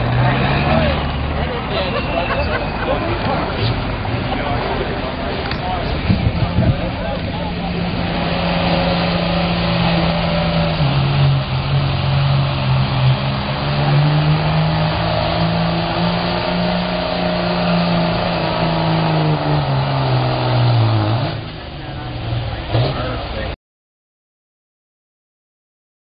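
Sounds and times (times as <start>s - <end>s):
truck engine at high revs: 0.0s - 23.6s.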